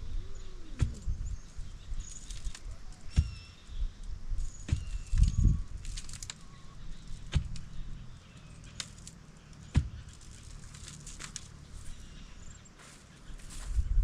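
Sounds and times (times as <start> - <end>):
rustling: 4.4 - 14.0
dull knocks: 9.7 - 10.1.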